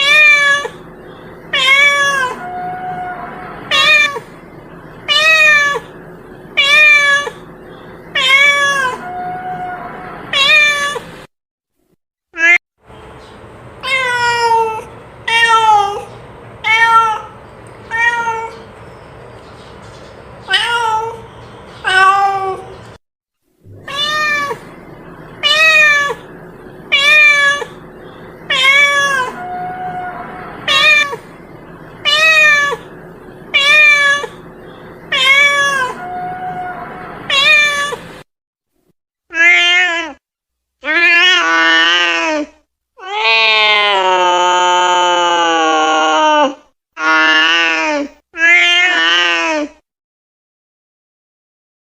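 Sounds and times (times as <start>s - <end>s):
cat meowing: 0.0s - 0.8s, 1.5s - 4.3s, 5.1s - 6.0s, 6.6s - 7.5s, 8.2s - 11.0s, 13.8s - 18.6s, 20.5s - 21.2s, 21.8s - 22.7s, 23.7s - 24.7s, 25.4s - 26.3s, 26.9s - 27.8s, 28.5s - 31.3s, 32.0s - 32.9s, 33.5s - 34.4s, 35.1s - 38.1s, 39.3s - 40.2s, 40.8s - 44.3s, 48.4s - 49.7s.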